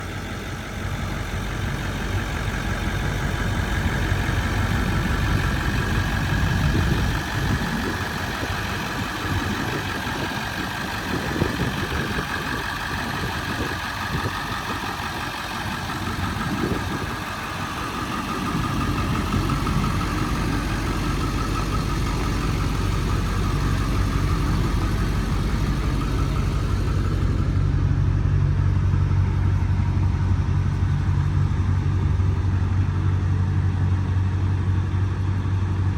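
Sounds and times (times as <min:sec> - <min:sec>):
truck engine idling: 0:00.0 - 0:35.9.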